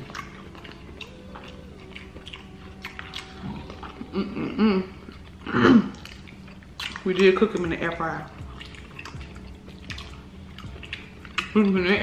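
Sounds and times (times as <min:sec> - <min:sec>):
mouth clicks and smacks: 0:00.0 - 0:04.0, 0:05.1 - 0:07.7, 0:08.3 - 0:11.7
faint hum: 0:00.0 - 0:12.0
people chewing: 0:00.0 - 0:12.0.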